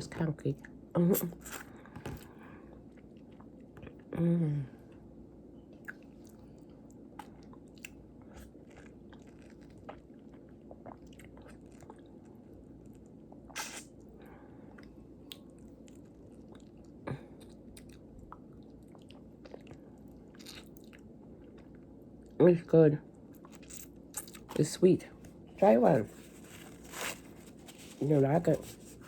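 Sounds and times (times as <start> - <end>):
person biting and chewing fruit: 1.2 - 4.0, 7.2 - 12.2, 12.8 - 14.0, 14.7 - 21.7, 23.3 - 24.6, 25.2 - 29.0.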